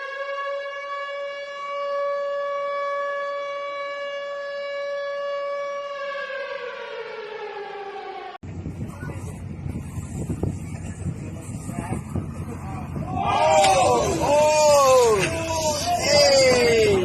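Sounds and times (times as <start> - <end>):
siren wailing: 0.0 - 8.4, 12.1 - 17.0.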